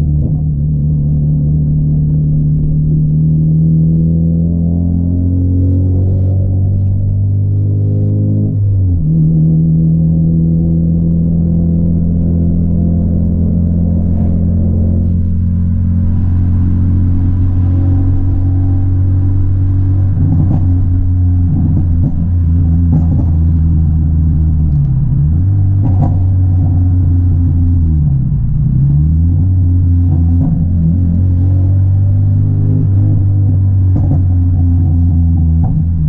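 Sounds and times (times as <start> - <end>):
car engine revving: 0.0 - 36.0
sharp exhaust pops: 20.0 - 23.8, 25.6 - 27.3, 33.8 - 36.0.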